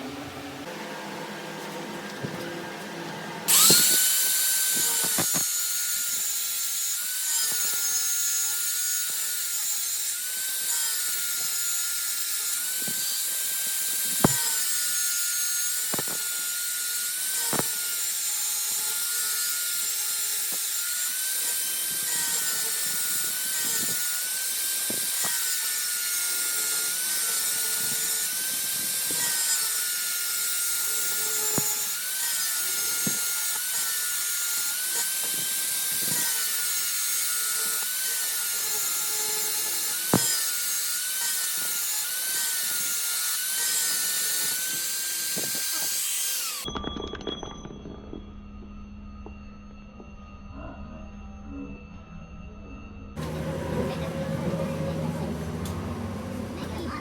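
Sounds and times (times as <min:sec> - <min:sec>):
power tool whining: 0:00.0 - 0:48.6, 0:53.2 - 0:57.0.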